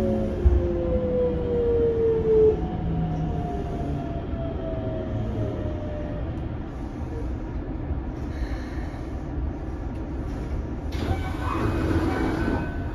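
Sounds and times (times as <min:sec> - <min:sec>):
train wheels rumbling: 0:00.0 - 0:12.9.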